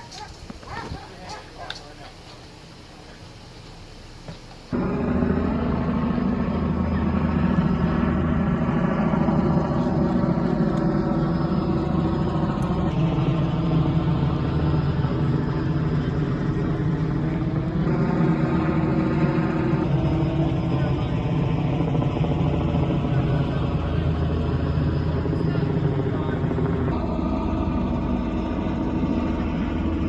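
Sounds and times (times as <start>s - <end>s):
loud engine drone: 0.0s - 30.0s
faint hiss: 0.1s - 4.8s.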